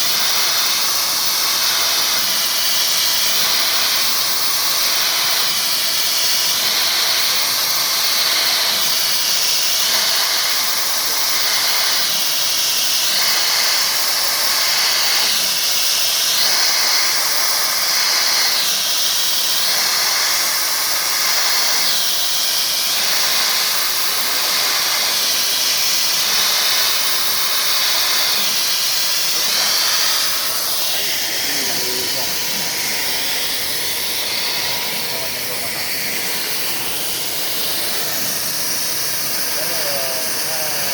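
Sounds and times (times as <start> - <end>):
cnc machine cutting aluminium: 0.0 - 40.9.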